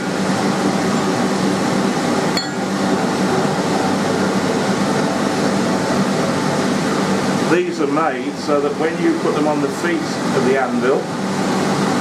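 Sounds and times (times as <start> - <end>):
steady hum and hiss: 0.0 - 12.0
metal clinking on anvil: 2.4 - 2.7.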